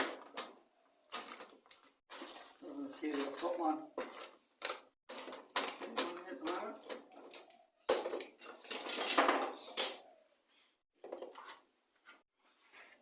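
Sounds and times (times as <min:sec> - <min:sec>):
metal parts and tools clinking: 0:01.1 - 0:10.0.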